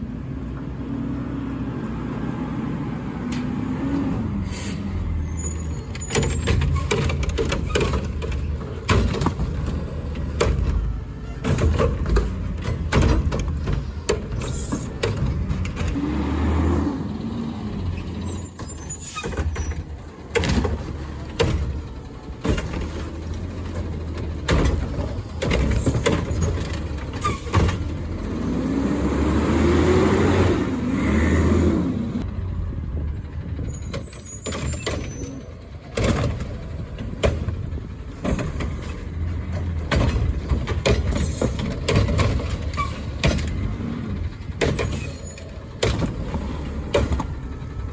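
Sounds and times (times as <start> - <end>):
garbage truck engine revving: 1.3 - 47.9
air brake hisses: 4.4 - 5.4.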